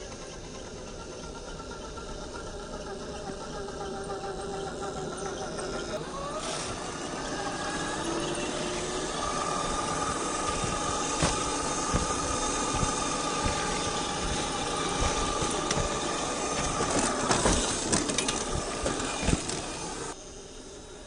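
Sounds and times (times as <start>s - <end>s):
rc car motor whine: 0.0s - 21.0s
knocks and clicks: 8.8s - 20.2s.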